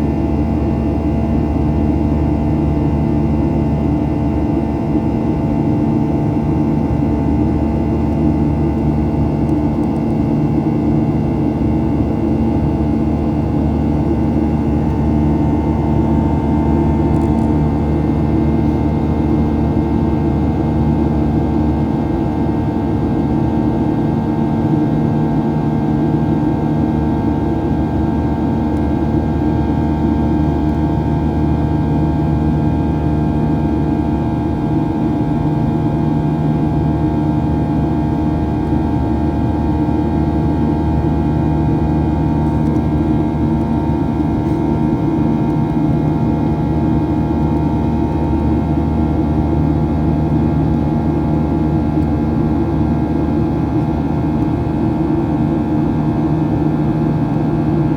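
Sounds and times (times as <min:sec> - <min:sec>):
jet engine cabin drone: 0:00.0 - 0:57.9.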